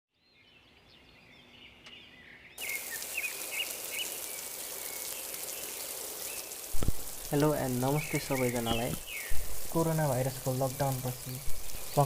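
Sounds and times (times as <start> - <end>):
small birds chirping: 0.1 - 12.0
steady hiss: 2.6 - 12.0.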